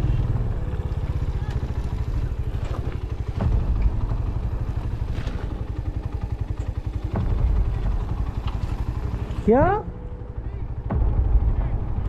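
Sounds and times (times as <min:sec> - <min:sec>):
bike knocking and rattling: 0:00.0 - 0:11.0
motorcycle engine running: 0:00.0 - 0:12.0.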